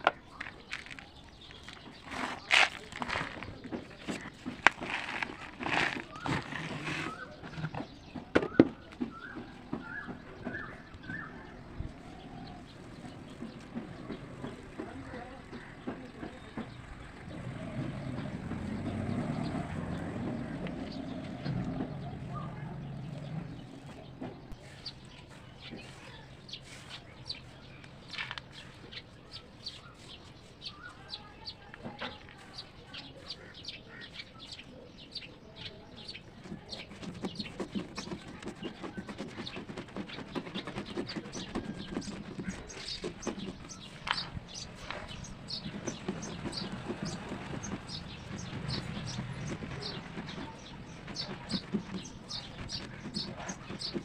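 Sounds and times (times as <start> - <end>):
crisp crunching crackles: 0.0 - 7.2.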